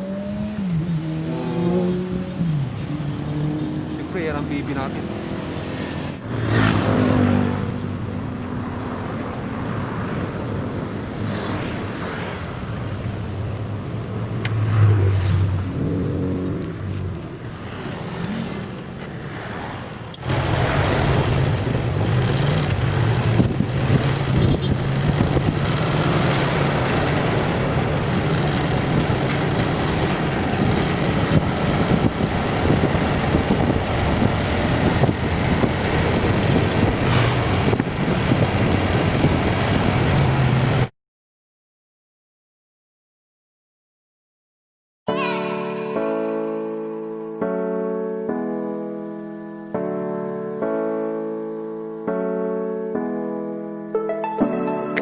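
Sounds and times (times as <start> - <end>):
motorcycle engine hum: 11.8 - 40.7
wind noise on microphone: 20.3 - 40.9.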